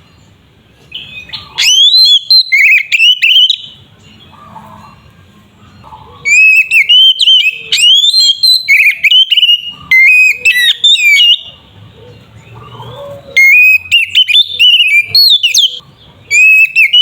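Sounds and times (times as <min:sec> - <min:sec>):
bird singing whistled phrases: 0:00.9 - 0:03.8, 0:06.3 - 0:11.6, 0:13.4 - 0:17.0.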